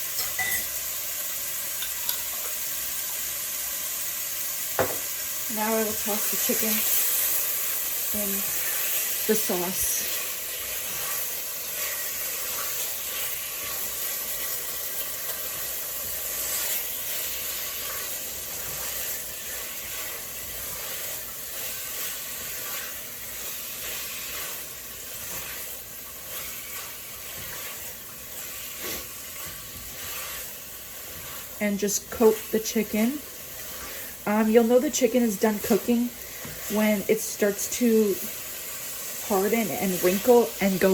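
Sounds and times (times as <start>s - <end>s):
chicken sizzling in oil: 0.0s - 40.9s
spoon scraping and tapping: 0.2s - 0.7s.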